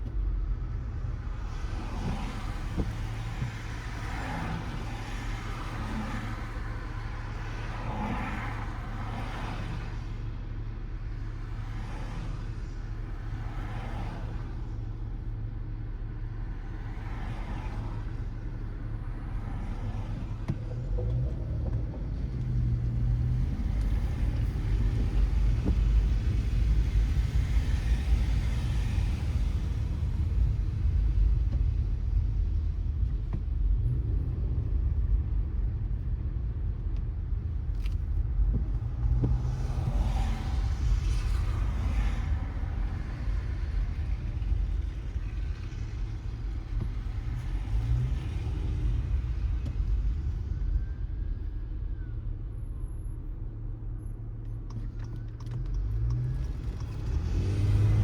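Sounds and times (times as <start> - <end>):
road and tyre rumble: 0.0 - 58.0
tyres hissing on wet road: 1.0 - 10.4, 11.1 - 15.4, 16.1 - 21.2, 22.6 - 34.6, 38.8 - 50.9, 55.9 - 58.0.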